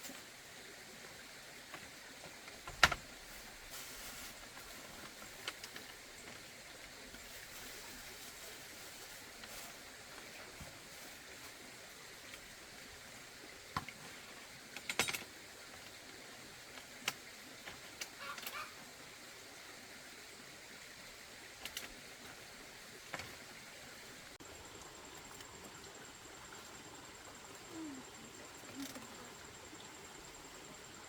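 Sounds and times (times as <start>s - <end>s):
faint steady hiss: 0.0s - 31.0s
sharp clicks and light knocks: 5.0s - 6.0s, 14.7s - 16.0s.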